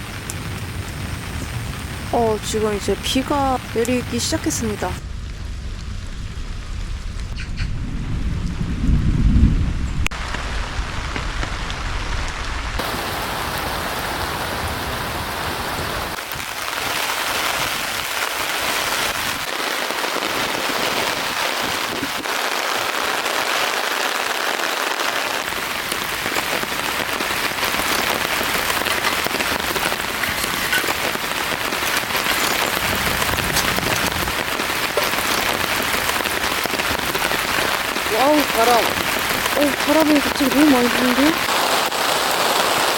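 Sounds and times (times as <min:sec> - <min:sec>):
heavy rain pouring: 0:00.0 - 0:42.9
low rumble of distant thunder: 0:04.9 - 0:12.8.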